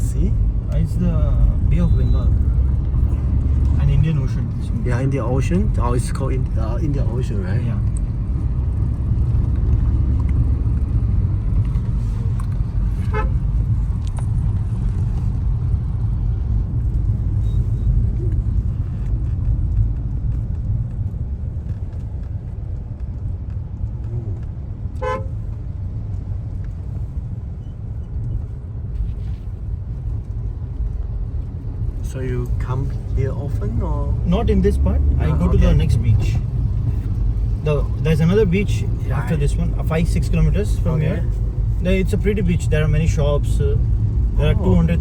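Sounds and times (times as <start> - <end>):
road traffic rumble: 0.0 - 45.0
vehicle horn toots: 13.0 - 13.4, 25.0 - 25.3.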